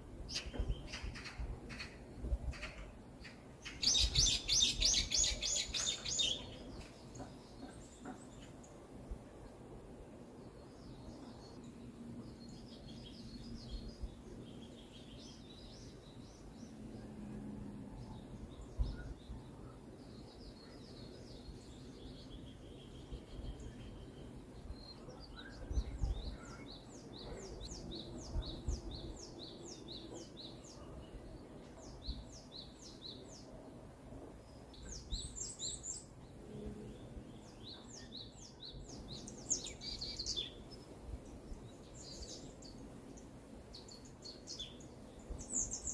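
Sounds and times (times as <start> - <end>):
birds singing and chirping: 0.3 - 8.5, 36.9 - 45.9.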